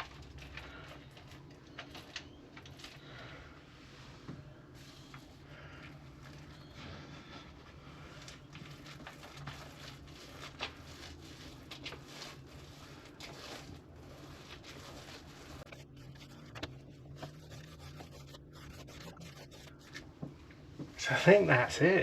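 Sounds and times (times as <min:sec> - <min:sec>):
paint brush rubbing strokes: 0:04.8 - 0:20.2.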